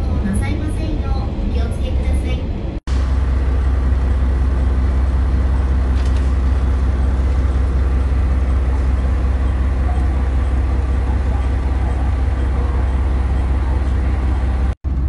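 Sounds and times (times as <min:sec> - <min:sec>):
diesel railcar engine drone: 0:00.0 - 0:15.0.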